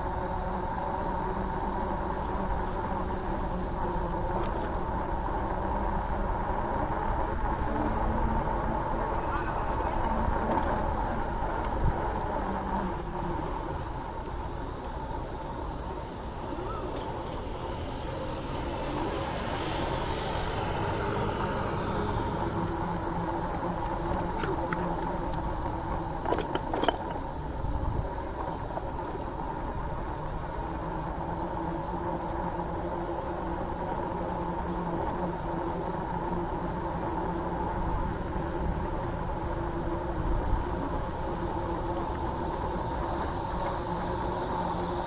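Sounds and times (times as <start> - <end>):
low rumble of traffic: 0.0 - 45.0
road and wind noise: 0.0 - 45.0
brakes squealing: 1.2 - 32.6.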